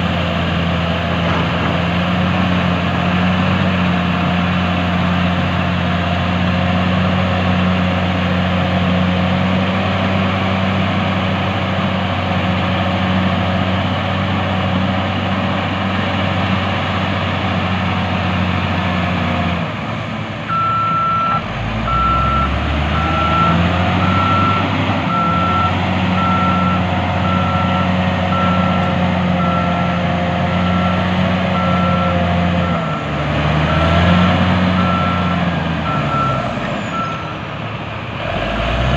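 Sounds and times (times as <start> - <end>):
heavy diesel machinery engine: 0.0 - 38.9.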